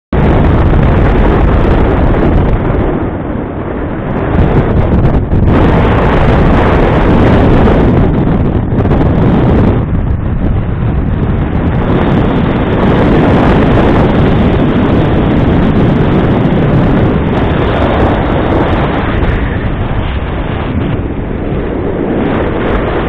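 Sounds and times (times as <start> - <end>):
wind buffeting microphone: 0.1 - 23.0.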